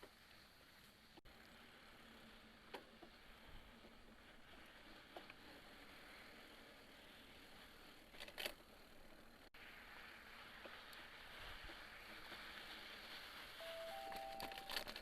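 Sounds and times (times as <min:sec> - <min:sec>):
faint steady hiss: 0:00.0 - 0:15.0
two-tone phone beep: 0:13.6 - 0:14.8.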